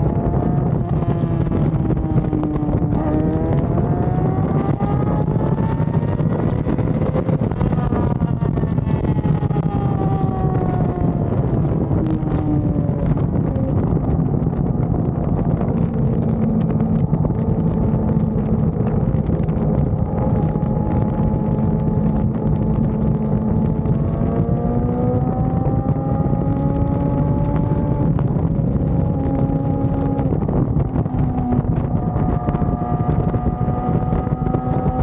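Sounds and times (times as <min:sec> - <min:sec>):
motorcycle engine running: 0:00.0 - 0:35.0
wind noise on microphone: 0:00.0 - 0:35.0.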